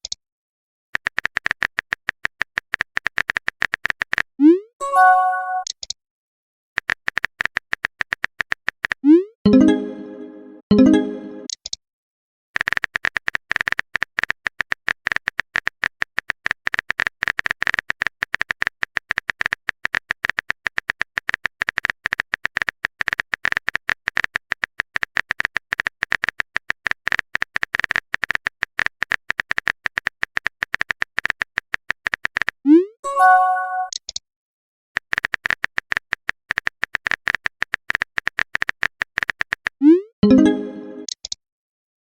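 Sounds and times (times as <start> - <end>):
keyboard typing clicks: 1.0 - 4.3, 12.6 - 32.6, 33.2 - 34.2, 35.0 - 41.4.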